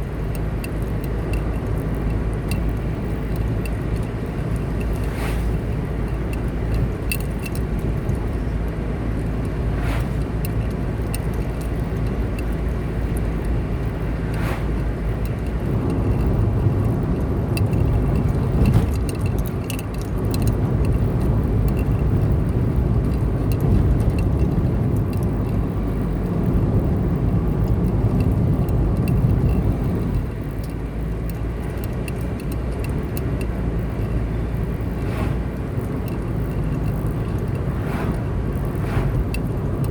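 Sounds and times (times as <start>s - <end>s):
car engine and tyre noise: 0.0s - 39.9s
light clicks or rattles: 0.0s - 39.9s.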